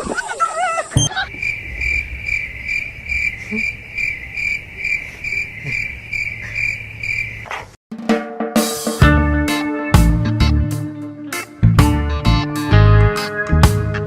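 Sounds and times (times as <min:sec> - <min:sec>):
insect chirping: 0:00.6 - 0:07.7.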